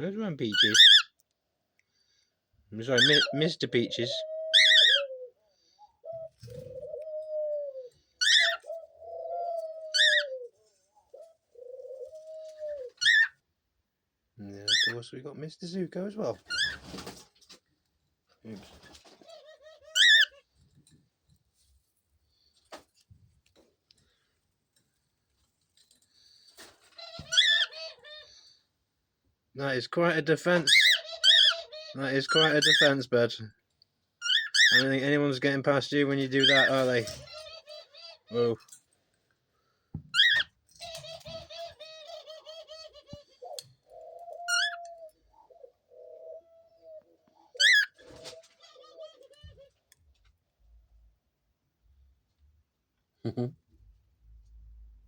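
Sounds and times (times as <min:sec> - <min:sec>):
doves cooing: 0:03.0 - 0:13.3, 0:26.2 - 0:28.6, 0:36.0 - 0:38.7, 0:40.1 - 0:49.9.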